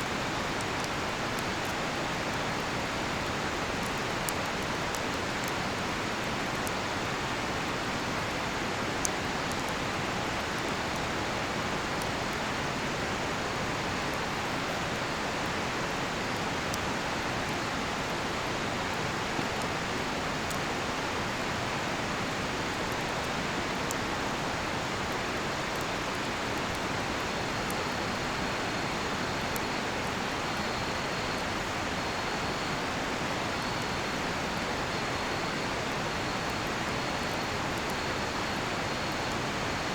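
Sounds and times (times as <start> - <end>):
campfire crackling and popping: 0.0 - 34.4, 35.1 - 39.7.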